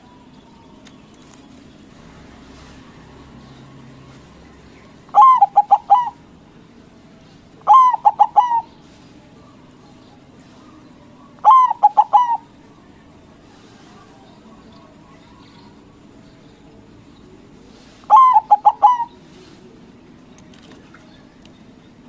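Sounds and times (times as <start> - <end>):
dove cooing: 5.0 - 6.4, 7.5 - 12.8, 17.4 - 20.0.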